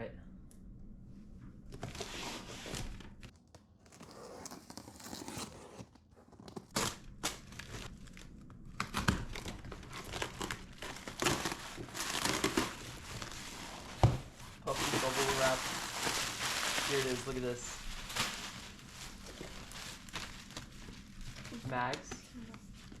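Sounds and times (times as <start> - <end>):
packaging rustling and crinkling: 1.7 - 23.0
tape and cardboard tearing: 3.4 - 7.7.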